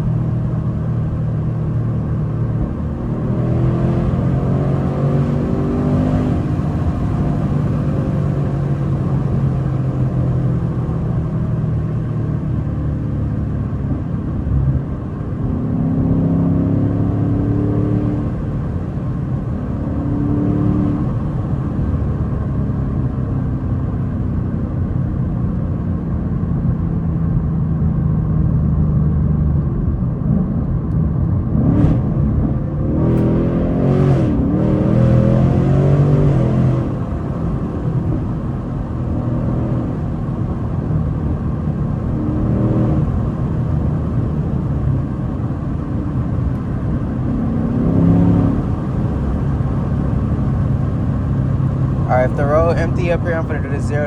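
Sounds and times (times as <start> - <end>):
car engine revving: 0.1 - 12.1, 14.5 - 22.9, 31.4 - 54.0.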